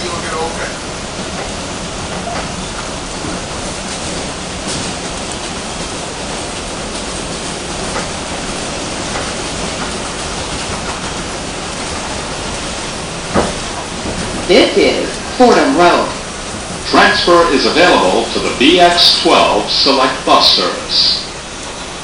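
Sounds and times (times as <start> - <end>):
subway wheels rumbling on rail: 0.0 - 22.0.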